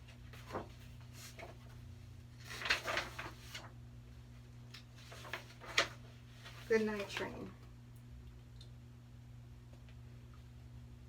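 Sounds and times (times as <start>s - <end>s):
book page rustle: 0.0s - 1.8s, 2.4s - 3.7s, 4.8s - 7.3s
low electrical hum: 0.0s - 11.0s.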